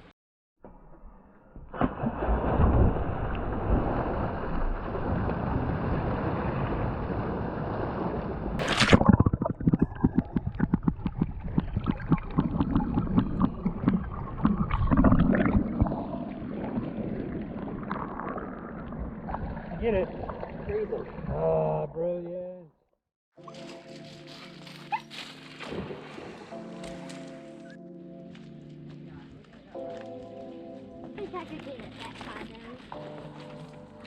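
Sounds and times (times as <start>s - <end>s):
sharp water splash: 1.7s - 21.4s, 25.4s - 27.5s
water sloshing and gurgling: 1.7s - 23.0s, 25.5s - 27.8s
bubbling water: 8.6s - 22.0s.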